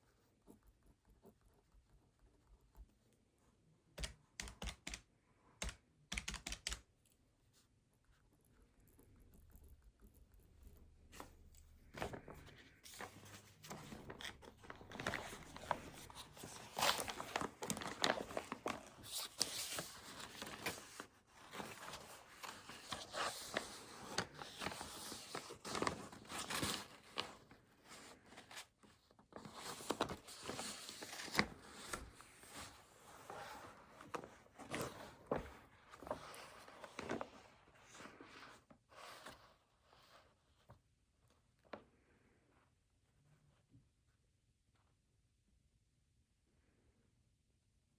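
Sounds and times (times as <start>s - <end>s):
paper rustling and crinkling: 10.7s - 40.8s.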